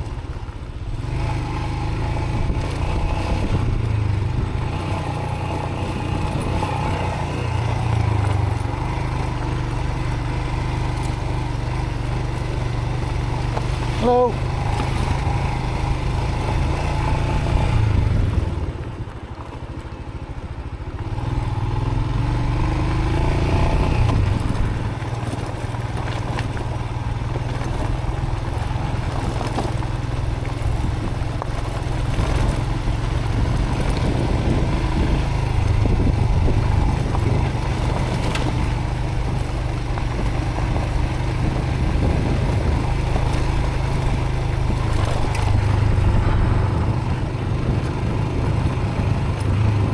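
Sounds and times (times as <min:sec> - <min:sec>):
motorcycle engine revving: 0:00.0 - 0:49.9
wind noise on microphone: 0:02.2 - 0:05.2, 0:16.5 - 0:19.3, 0:29.2 - 0:49.9.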